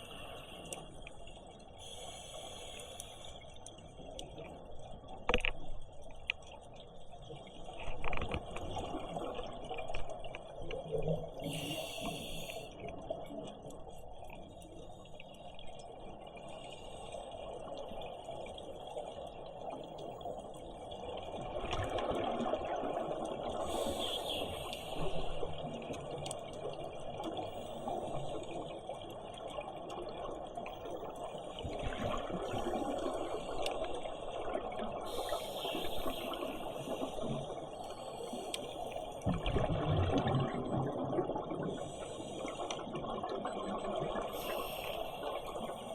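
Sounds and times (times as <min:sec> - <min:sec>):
underwater noise: 0:00.0 - 0:45.9
scuba breathing through regulator: 0:11.4 - 0:12.8, 0:35.1 - 0:39.1, 0:44.3 - 0:45.9
exhaled bubbles rushing: 0:39.2 - 0:41.9.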